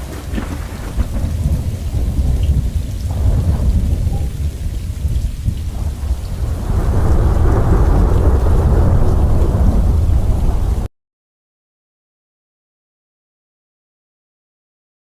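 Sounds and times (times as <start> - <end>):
steady rain: 0.0 - 10.9
thunder rumbling: 0.0 - 10.9.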